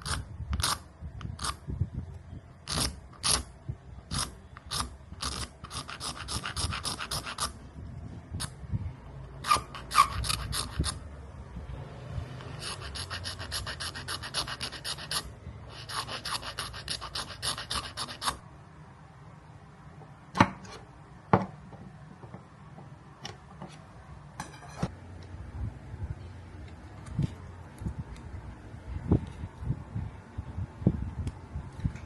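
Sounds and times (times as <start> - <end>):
bone scraping by hand: 0.0 - 1.6, 2.7 - 3.5, 4.1 - 7.6, 9.4 - 11.0, 12.4 - 18.4.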